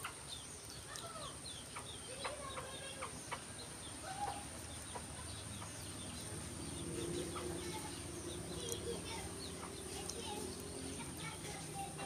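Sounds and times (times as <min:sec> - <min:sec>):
bird calls and chirps: 0:00.0 - 0:12.0.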